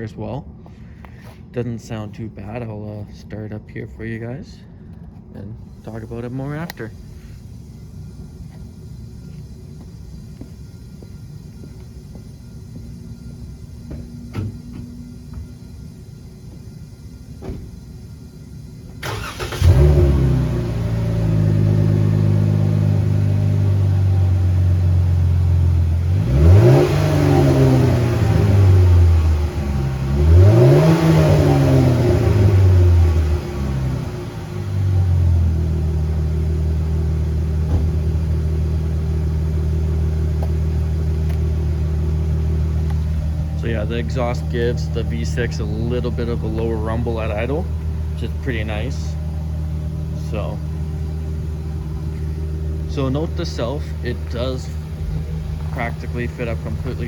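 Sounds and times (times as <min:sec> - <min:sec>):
truck engine starting and idling: 0:00.0 - 0:57.0
engine revving: 0:19.0 - 0:57.0.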